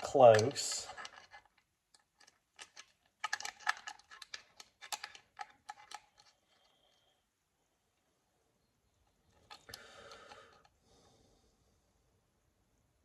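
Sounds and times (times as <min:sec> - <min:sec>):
metal pipe fittings clinking: 0:00.0 - 0:06.7.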